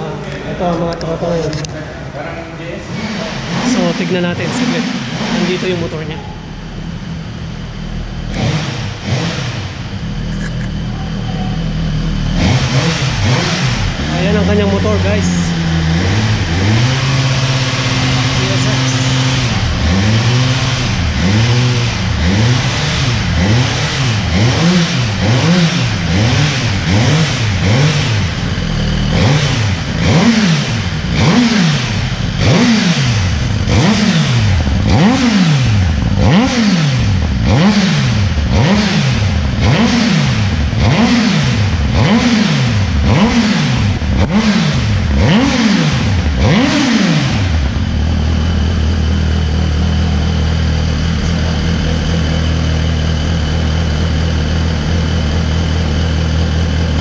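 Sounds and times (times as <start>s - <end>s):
motorcycle engine revving: 0.0s - 57.0s
motorcycle engine idling: 3.1s - 57.0s.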